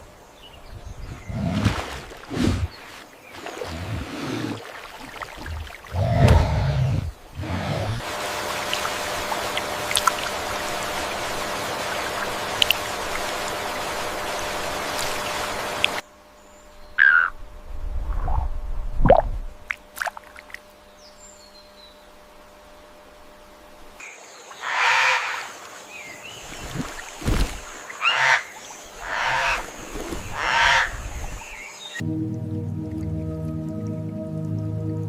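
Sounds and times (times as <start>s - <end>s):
running water rushing: 1.0s - 16.0s, 24.5s - 31.6s
animal calls: 17.0s - 17.4s.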